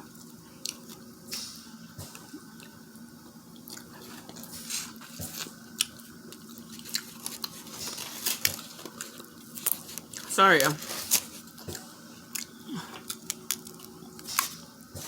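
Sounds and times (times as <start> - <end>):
faint steady hum: 0.0 - 15.0
wet chewing and smacking: 0.1 - 2.9, 3.6 - 10.3, 11.0 - 15.0.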